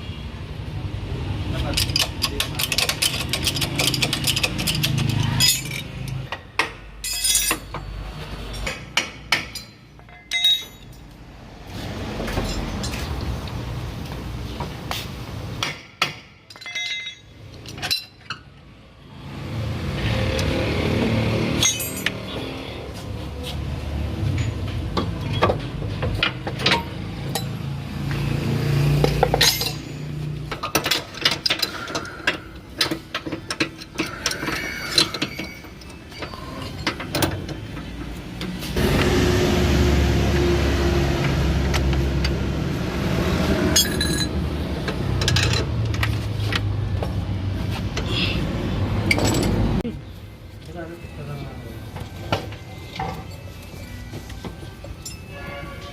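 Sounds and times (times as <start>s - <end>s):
metal tools clinking and knocking: 1.6s - 11.2s, 15.8s - 18.5s, 21.6s - 22.5s, 29.1s - 38.1s, 43.7s - 46.2s, 49.1s - 49.6s, 52.0s - 55.8s.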